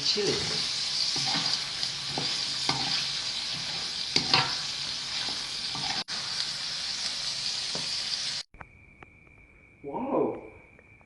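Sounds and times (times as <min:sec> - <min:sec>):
oil sizzling in a pan: 0:00.0 - 0:08.5
utensil scraping a pan: 0:00.3 - 0:06.1.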